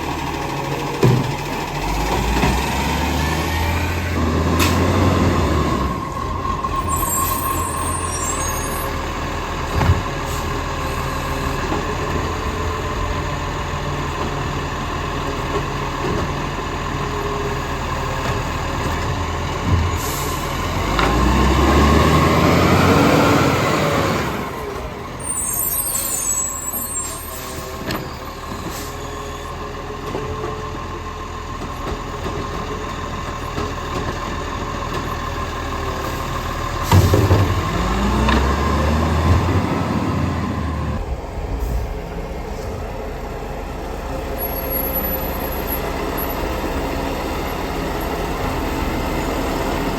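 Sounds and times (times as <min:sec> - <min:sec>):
diesel truck engine running: 0:00.0 - 0:49.9
air brake hisses: 0:19.9 - 0:20.5, 0:25.2 - 0:27.9, 0:28.6 - 0:29.5.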